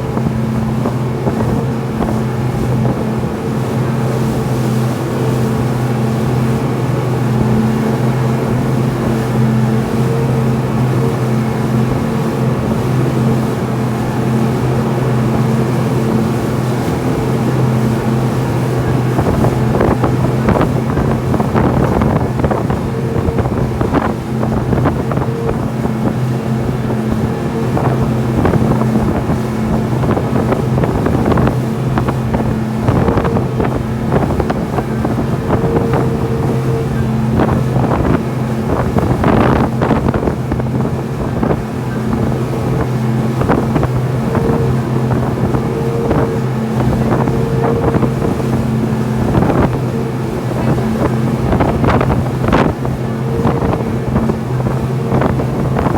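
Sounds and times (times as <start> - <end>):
boat engine humming: 0.0 - 55.9
wind buffeting microphone: 0.0 - 55.9.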